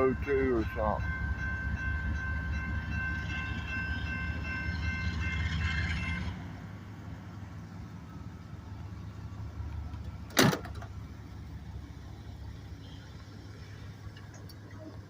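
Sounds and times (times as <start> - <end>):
high ringing tone: 0.0 - 6.3
diesel locomotive engine rumble: 0.0 - 15.0.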